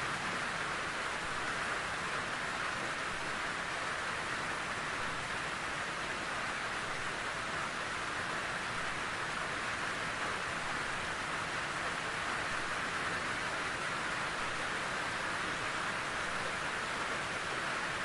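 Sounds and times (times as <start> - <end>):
steady rain hiss: 0.0 - 18.0.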